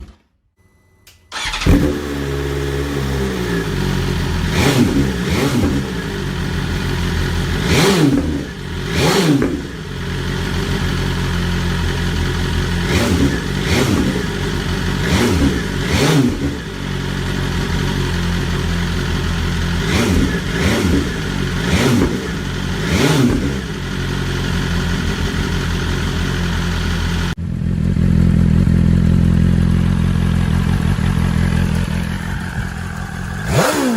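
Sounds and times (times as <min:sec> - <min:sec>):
motorcycle engine idling and revving: 0:01.3 - 0:33.9.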